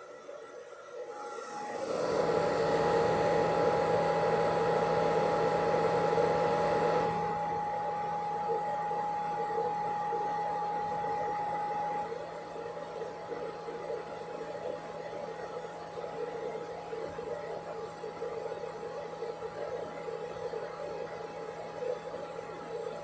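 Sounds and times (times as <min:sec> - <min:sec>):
electric appliance motor whirring: 0:01.2 - 0:13.4.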